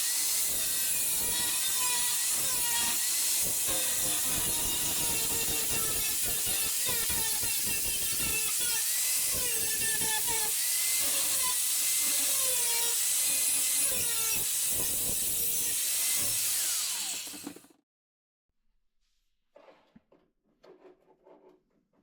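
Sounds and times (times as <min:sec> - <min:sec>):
angle grinder cutting steel: 0:00.0 - 0:17.6.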